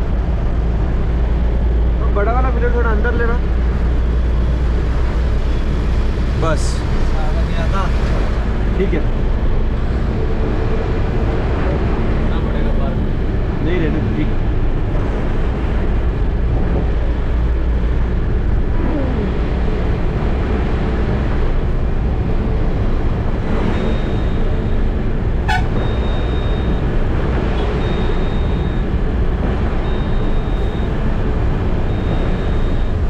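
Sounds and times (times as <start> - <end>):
truck engine and road rumble: 0.0 - 33.0
high-pitched electronic beep: 23.6 - 24.9, 25.8 - 27.0, 27.6 - 29.0, 29.8 - 31.0, 31.8 - 33.0.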